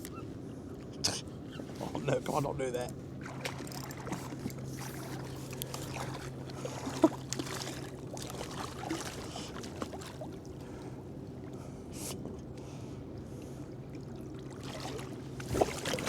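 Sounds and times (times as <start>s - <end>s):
steady low hum: 0.0s - 16.0s
water splashing and trickling: 3.2s - 10.8s, 13.9s - 16.0s.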